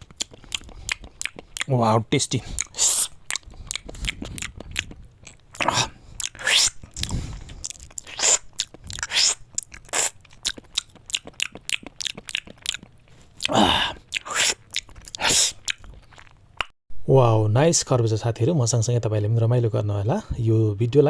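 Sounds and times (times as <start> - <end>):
person chewing watermelon: 0.0 - 16.7.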